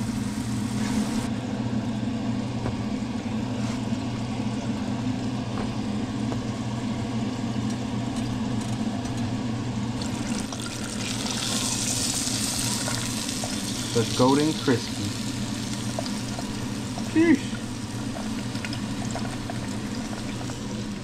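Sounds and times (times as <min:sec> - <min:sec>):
steady low hum: 0:00.0 - 0:21.0
fish frying in oil: 0:10.0 - 0:21.0.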